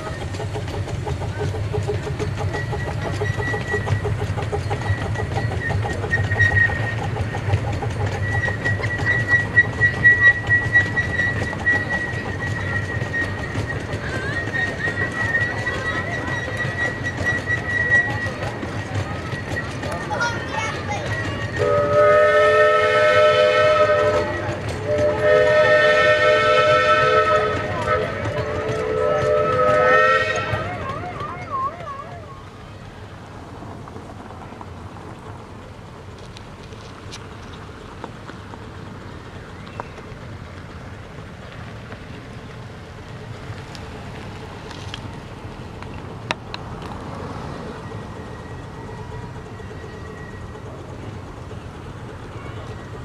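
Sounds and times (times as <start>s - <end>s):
steam train rumble and hiss: 0.0s - 53.0s
steam locomotive whistle blasts: 8.1s - 15.6s, 21.5s - 32.5s.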